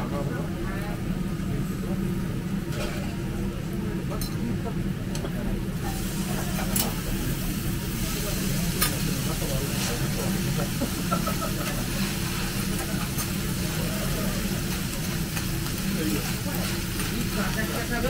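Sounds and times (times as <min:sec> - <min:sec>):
food sizzling on a griddle: 0:05.7 - 0:18.0.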